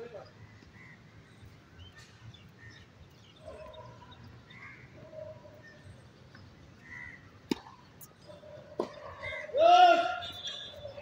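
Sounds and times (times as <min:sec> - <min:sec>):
birds chirping: 0:00.0 - 0:11.0
faint outdoor background noise: 0:00.0 - 0:11.0
tennis ball knock: 0:07.5 - 0:07.7.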